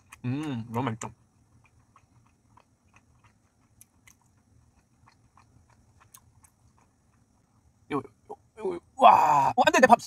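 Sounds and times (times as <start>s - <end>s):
chewing with mouth clicks: 0.0s - 7.7s.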